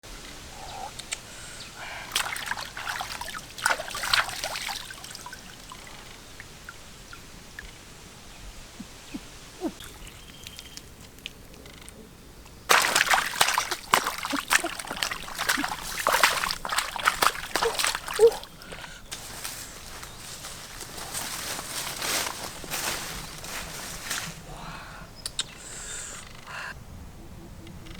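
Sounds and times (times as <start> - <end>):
shallow water sloshing: 1.8 - 7.8, 12.5 - 24.6
water splashing: 1.8 - 7.8, 8.8 - 11.6, 12.5 - 24.6.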